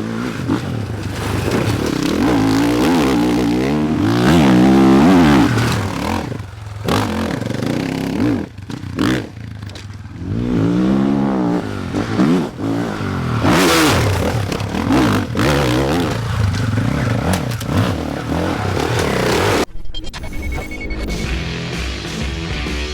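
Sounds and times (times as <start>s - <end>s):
motorcycle engine revving: 0.0s - 19.7s
clattering and scraping: 0.3s - 3.2s, 13.9s - 19.7s.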